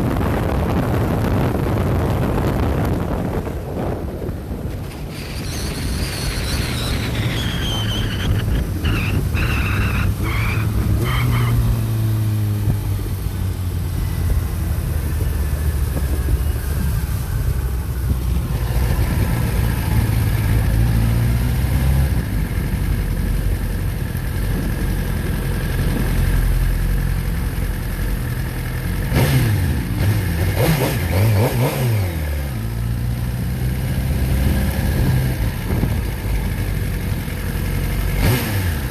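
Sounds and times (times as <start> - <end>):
motorcycle engine running: 22.1 - 38.9.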